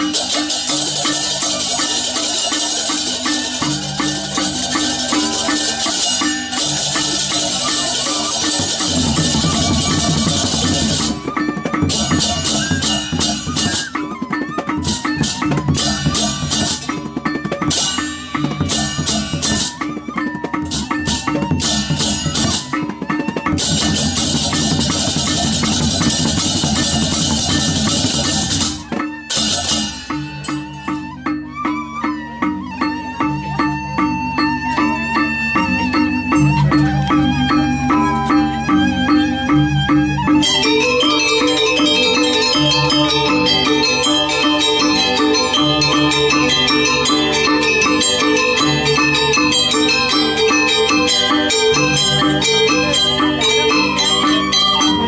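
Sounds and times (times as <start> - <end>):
clashing cymbals: 0.0 - 14.1, 20.6 - 31.0
gamelan music: 0.0 - 55.0.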